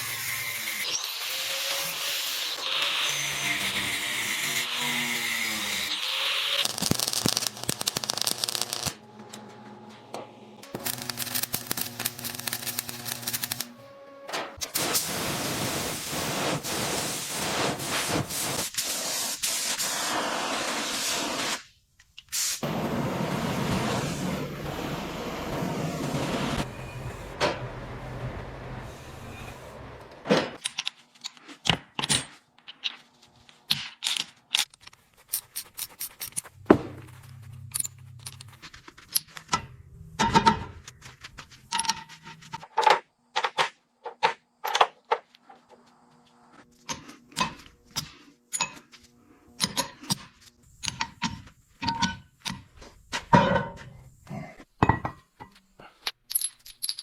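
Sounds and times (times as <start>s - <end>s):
metal tools clinking and scraping: 37.4s - 43.0s, 46.8s - 49.0s.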